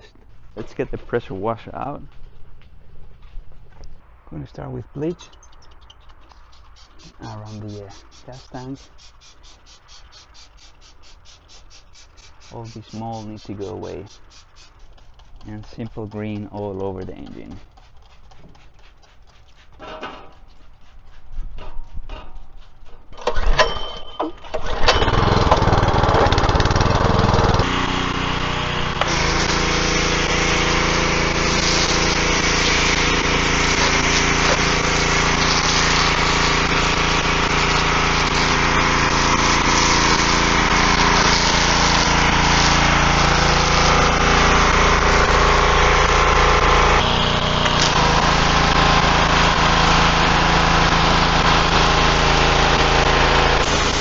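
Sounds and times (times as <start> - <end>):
high-pressure spray hiss: 6.3 - 15.1, 28.7 - 45.4, 53.4 - 54.0
small engine running: 24.6 - 54.0.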